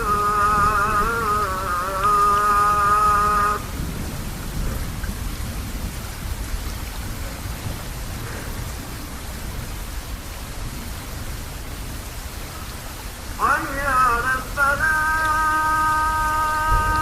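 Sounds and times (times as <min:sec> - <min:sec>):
sung call to prayer: 0:00.0 - 0:03.8, 0:13.4 - 0:17.0
steady rain falling: 0:00.0 - 0:17.0.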